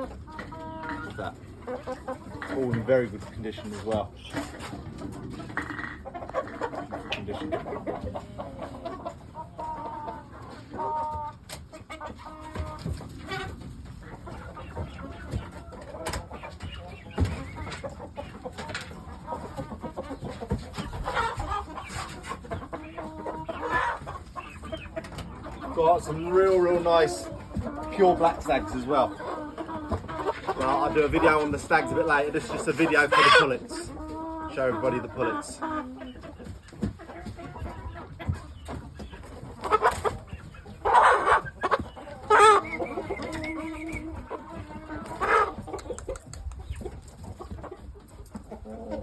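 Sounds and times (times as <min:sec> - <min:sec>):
chickens clucking: 0:00.0 - 0:49.0.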